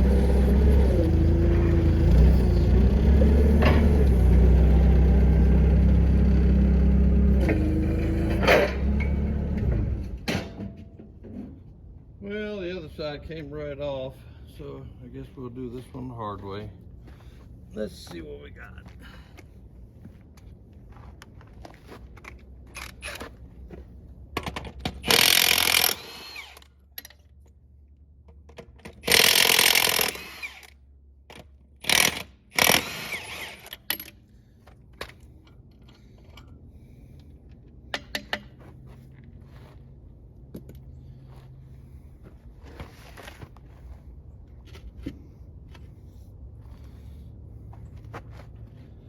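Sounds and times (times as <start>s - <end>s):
power tool bursts: 25.0s - 26.7s, 29.0s - 30.8s, 31.8s - 34.1s.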